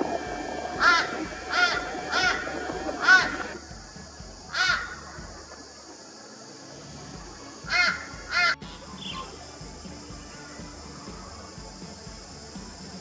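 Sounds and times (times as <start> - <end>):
harsh cawing bird calls: 0.8 - 3.6, 4.5 - 5.2, 7.7 - 9.3.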